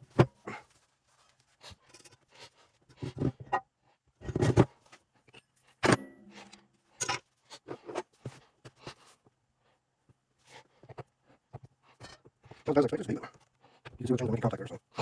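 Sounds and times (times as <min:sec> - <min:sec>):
sharp ringing metal strike: 0:06.0 - 0:06.5.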